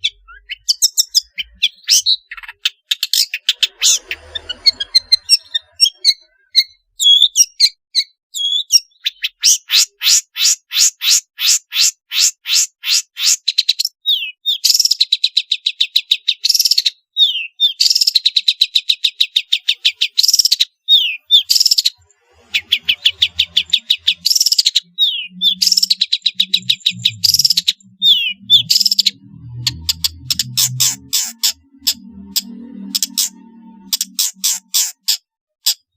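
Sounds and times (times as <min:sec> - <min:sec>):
shrike singing: 0:20.9 - 0:35.1.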